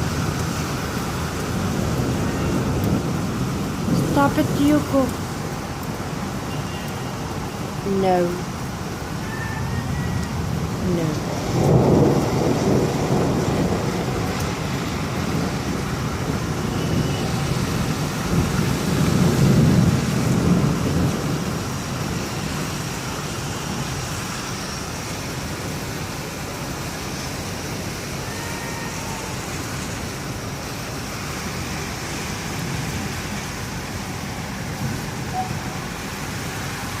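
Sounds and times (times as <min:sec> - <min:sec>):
rolling thunder: 0:00.0 - 0:05.6, 0:10.4 - 0:23.3
heavy rain falling: 0:00.0 - 0:37.0.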